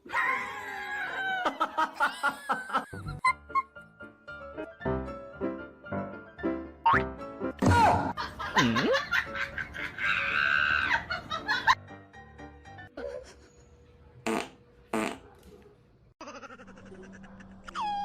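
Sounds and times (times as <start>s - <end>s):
laughter: 0.2s - 3.8s, 8.2s - 11.8s, 12.9s - 13.7s
background music: 2.3s - 13.0s
fart-like noise: 14.2s - 15.3s.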